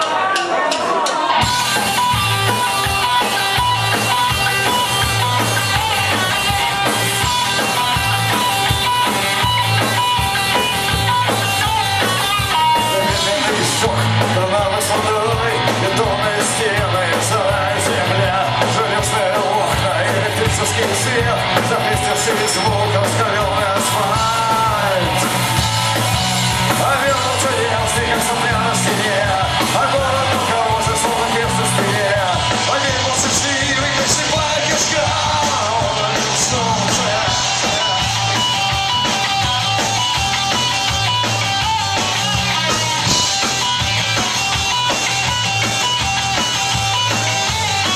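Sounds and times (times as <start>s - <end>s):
punk rock band playing live: 0.0s - 47.9s
shouted vocals: 26.8s - 39.4s.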